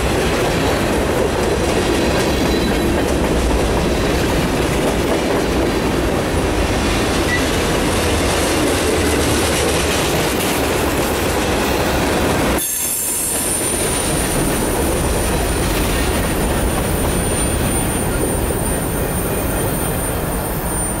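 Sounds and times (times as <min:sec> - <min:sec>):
train wheels rumbling on rails: 0:00.0 - 0:21.0
high-pitched wheel squeal: 0:17.0 - 0:21.0.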